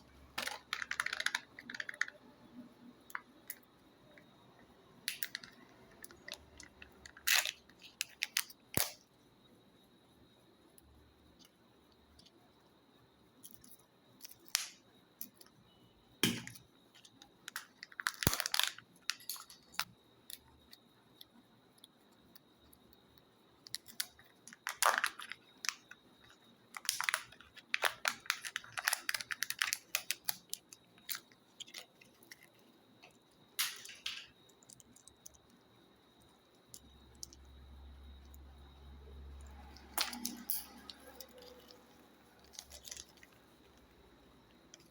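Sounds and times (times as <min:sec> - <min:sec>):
plastic capsules clicking: 0:00.4 - 0:02.3, 0:05.1 - 0:09.0, 0:16.2 - 0:19.9, 0:23.7 - 0:32.5, 0:33.6 - 0:35.4, 0:39.7 - 0:43.8
foil wrappers crinkling: 0:17.6 - 0:19.6, 0:23.9 - 0:25.9, 0:26.8 - 0:32.5, 0:39.8 - 0:43.4.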